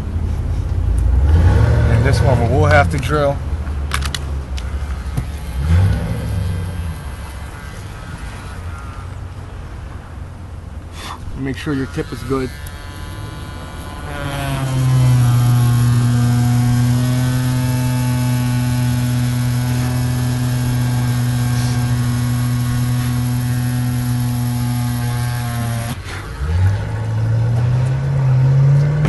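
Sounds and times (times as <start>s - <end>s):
small electric drill: 4.7s - 9.0s, 11.6s - 26.1s.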